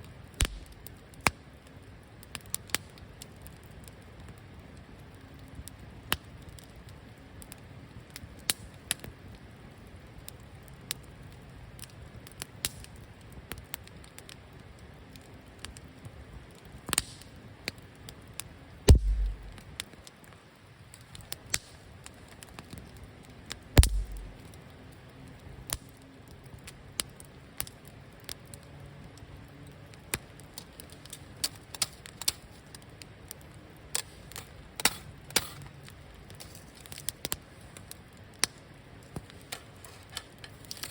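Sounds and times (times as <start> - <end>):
wood fire crackling and popping: 0.0 - 40.9
loud knocks: 18.9 - 19.6, 23.8 - 24.4.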